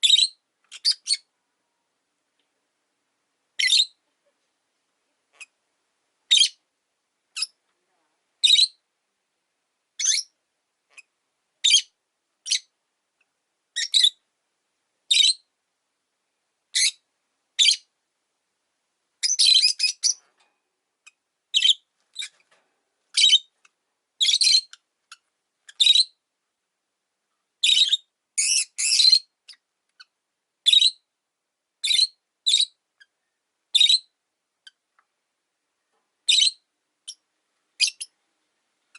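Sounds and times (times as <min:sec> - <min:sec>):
lovebirds chirping: 0:00.0 - 0:01.3, 0:03.5 - 0:04.0, 0:05.3 - 0:05.6, 0:06.3 - 0:06.6, 0:07.3 - 0:07.6, 0:08.4 - 0:08.8, 0:10.0 - 0:12.8, 0:13.8 - 0:14.2, 0:15.1 - 0:15.5, 0:16.7 - 0:17.0, 0:17.6 - 0:17.9, 0:19.2 - 0:20.3, 0:21.0 - 0:22.5, 0:23.1 - 0:26.2, 0:27.6 - 0:31.1, 0:31.8 - 0:34.8, 0:36.2 - 0:38.2.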